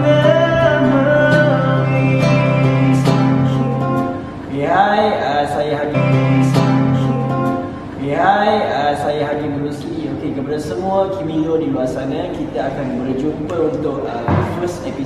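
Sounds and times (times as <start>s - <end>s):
person singing: 0.0s - 8.7s
acoustic guitar: 0.0s - 15.0s.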